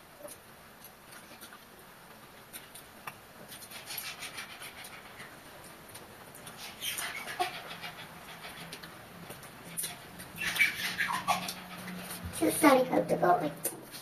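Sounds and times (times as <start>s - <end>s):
wet chewing and lip-smacking: 0.3s - 1.7s.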